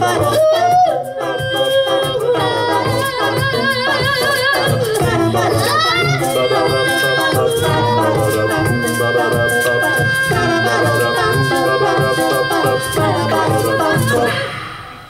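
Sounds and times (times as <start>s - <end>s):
live band playing pop ballad: 0.0s - 14.4s
rattle keeping a beat: 0.0s - 14.5s.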